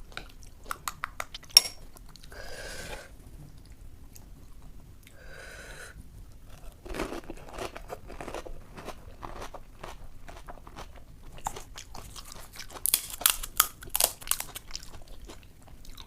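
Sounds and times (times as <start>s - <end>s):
chewing: 6.4s - 16.0s
crunching: 6.4s - 16.0s
crisp shell cracking: 11.4s - 14.7s.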